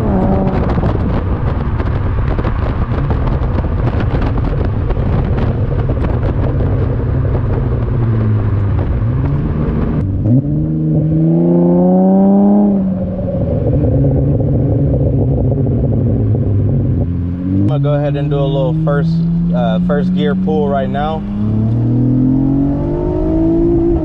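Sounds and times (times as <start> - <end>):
car engine through exhaust: 0.0 - 24.0
rushing wind and road noise: 0.0 - 24.0.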